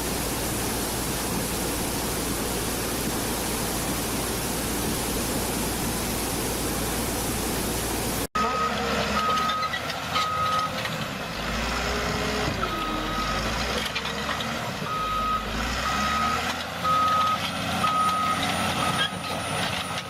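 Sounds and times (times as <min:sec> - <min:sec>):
diesel engine running: 0:08.0 - 0:20.0
reversing alarm beeping: 0:08.4 - 0:10.8, 0:12.6 - 0:13.5, 0:14.9 - 0:19.1.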